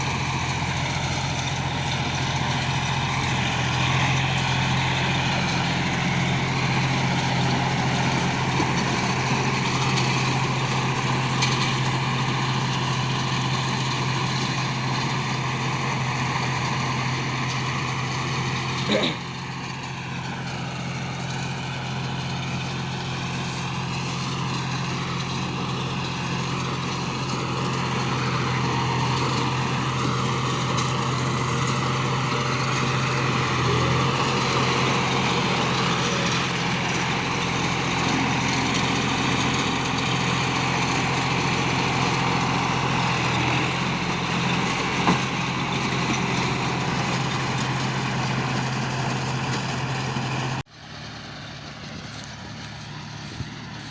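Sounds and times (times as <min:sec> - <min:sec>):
straw baler machine hum: 0:00.0 - 0:53.9
tractor diesel engine running: 0:00.0 - 0:53.9.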